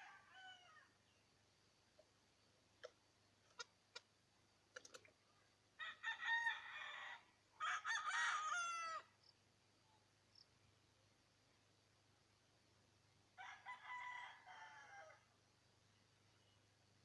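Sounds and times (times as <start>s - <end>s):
rooster crowing: 0.0s - 0.9s, 5.8s - 9.1s, 13.4s - 15.3s.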